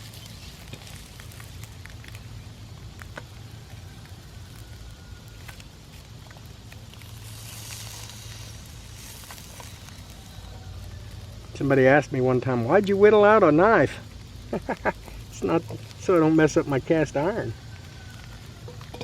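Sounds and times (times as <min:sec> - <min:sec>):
campfire crackles and pops: 0:00.0 - 0:19.0
eggs sizzling in a pan: 0:00.0 - 0:19.0.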